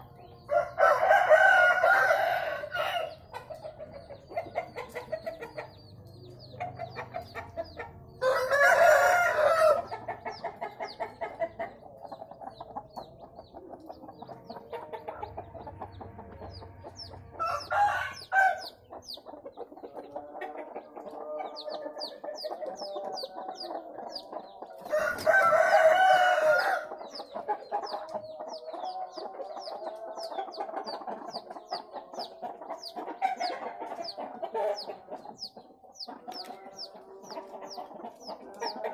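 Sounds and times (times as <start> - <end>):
chickens clucking: 0.0 - 38.9
roosters crowing: 0.4 - 3.3, 8.1 - 10.3, 15.2 - 18.9, 24.8 - 28.0.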